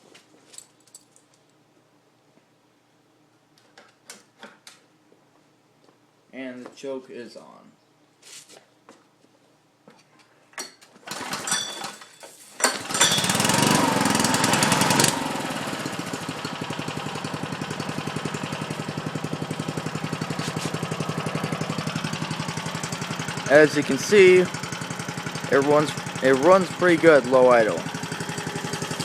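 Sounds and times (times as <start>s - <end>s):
lawn mower engine starting and idling: 11.0s - 29.0s.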